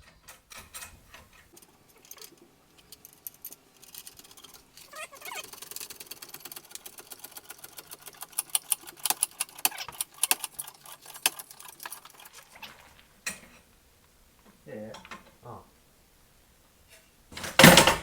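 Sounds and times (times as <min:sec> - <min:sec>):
hand tools clinking on metal: 0:00.0 - 0:06.2, 0:08.6 - 0:15.5, 0:16.9 - 0:18.0.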